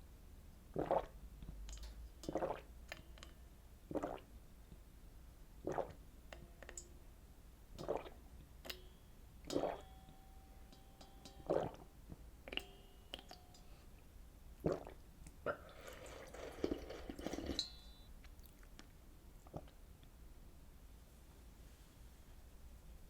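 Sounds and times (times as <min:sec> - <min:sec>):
wet squishy eating sounds: 0:15.7 - 0:19.8.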